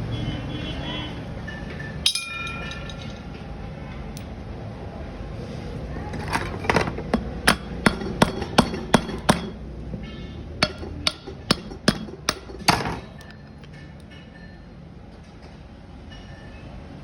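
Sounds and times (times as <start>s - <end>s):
hammer striking metal: 2.1s - 3.0s, 6.3s - 13.3s.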